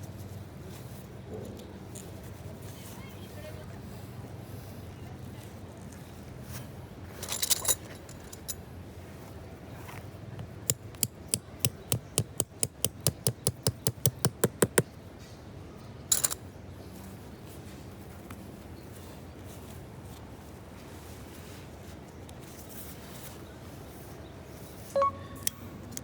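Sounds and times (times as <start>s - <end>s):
sharp knocks: 10.4s - 14.9s
small hard objects clinking: 16.1s - 16.4s.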